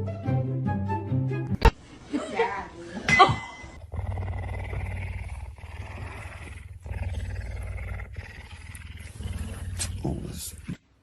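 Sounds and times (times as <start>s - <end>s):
cat purring: 3.8s - 10.8s.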